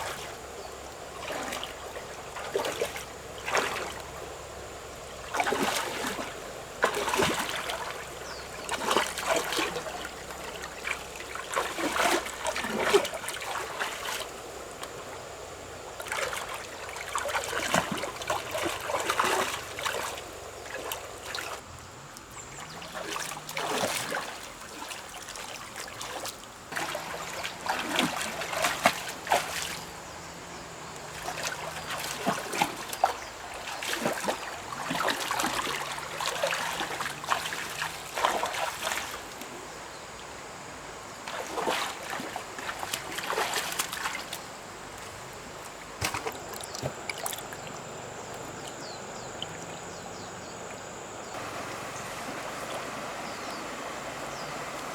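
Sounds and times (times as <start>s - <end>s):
water splashing and trickling: 0.0s - 54.9s.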